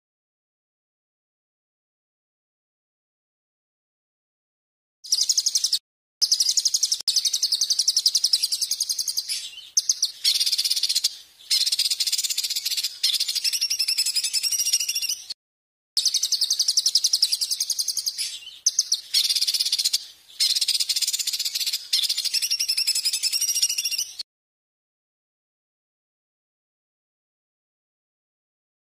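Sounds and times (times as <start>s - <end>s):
songbird buzzy trills: 5.1s - 15.4s, 16.0s - 24.2s.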